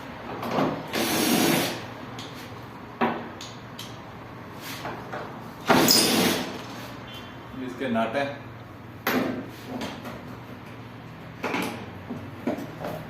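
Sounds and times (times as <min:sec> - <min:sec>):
hand tools noisy burst: 0:00.9 - 0:01.8, 0:05.7 - 0:06.6.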